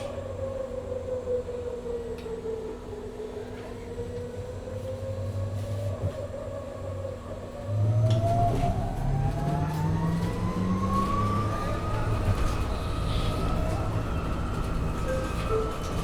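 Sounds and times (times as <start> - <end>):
bus accelerating: 7.6 - 16.0.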